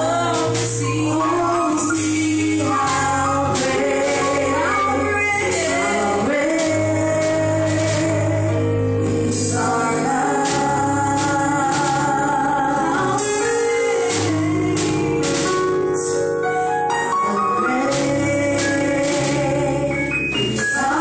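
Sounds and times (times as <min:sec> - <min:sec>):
person singing: 0:00.0 - 0:16.4, 0:17.0 - 0:21.0
keyboard and band accompaniment: 0:00.0 - 0:21.0
percussive beat: 0:10.4 - 0:12.4, 0:13.1 - 0:15.9, 0:17.9 - 0:19.8.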